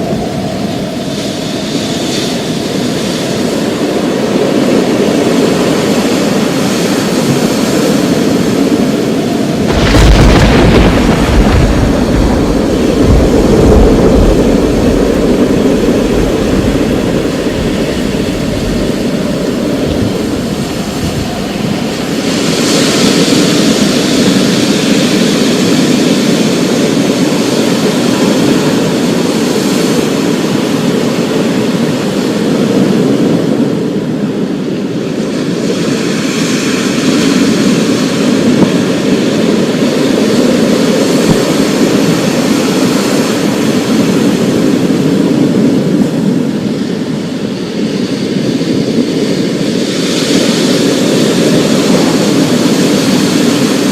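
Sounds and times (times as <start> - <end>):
heavy rain downpour: 0.0 - 33.6, 35.2 - 53.9
thunder rumbling: 6.9 - 25.9.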